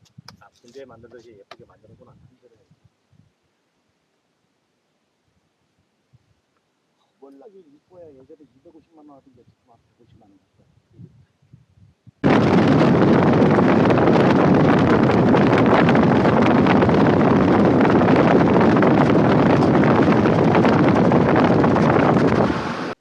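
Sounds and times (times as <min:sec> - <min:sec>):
wind buffeting microphone: 0:00.0 - 0:03.4, 0:09.3 - 0:23.0.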